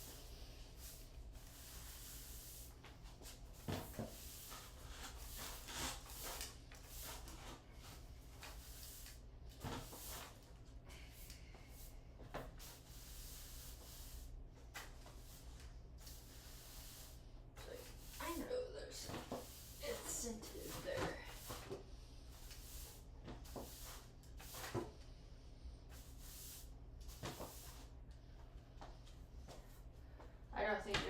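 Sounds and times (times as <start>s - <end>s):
objects rubbing and scraping: 0.0s - 10.5s, 12.4s - 25.1s.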